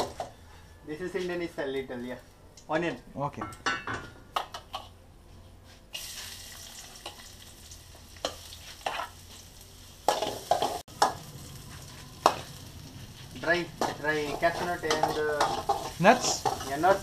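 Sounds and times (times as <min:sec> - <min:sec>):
onion sizzling in hot pan: 0:05.9 - 0:17.0
spoon knocking and scraping pan: 0:08.2 - 0:09.3, 0:10.1 - 0:12.6, 0:13.4 - 0:17.0.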